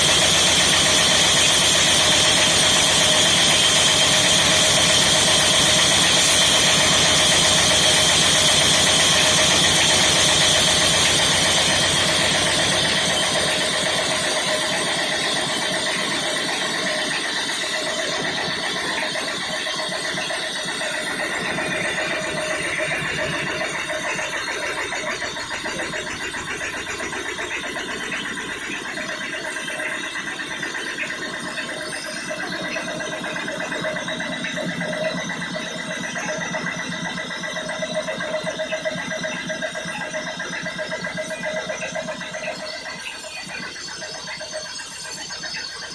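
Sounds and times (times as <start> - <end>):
power saw running: 0.0 - 45.9.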